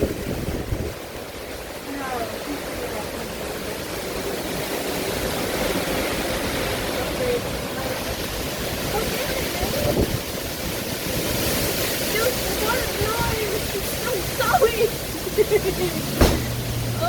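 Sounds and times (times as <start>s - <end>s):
strong wind rushing: 0.0s - 1.8s, 4.4s - 17.0s
wind buffeting microphone: 0.0s - 17.0s.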